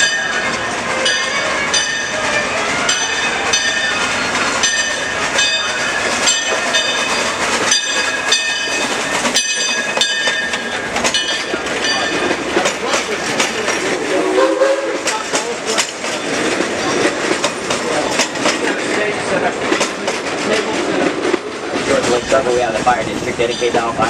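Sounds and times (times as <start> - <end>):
train bell ringing: 0.0 - 14.4, 23.1 - 24.0
train cars rumbling and clattering: 0.0 - 24.0.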